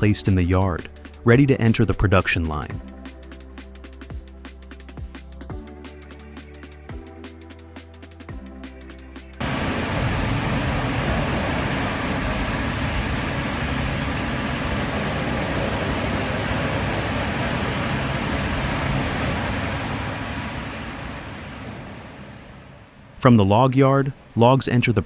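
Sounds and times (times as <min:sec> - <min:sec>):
heavy machinery running: 0:09.4 - 0:21.3.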